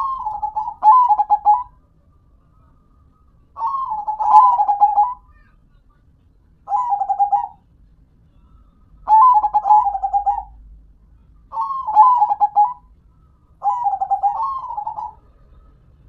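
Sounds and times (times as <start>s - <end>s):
dove cooing: 0.0s - 1.7s, 3.6s - 5.3s, 6.7s - 7.6s, 9.1s - 10.6s, 11.5s - 12.9s, 13.6s - 15.7s.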